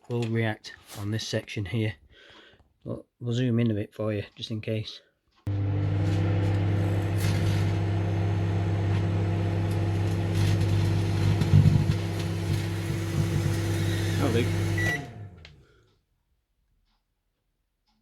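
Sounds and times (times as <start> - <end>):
buzzing of sparking grapes: 5.5 - 15.1
microwave oven humming: 5.5 - 15.6.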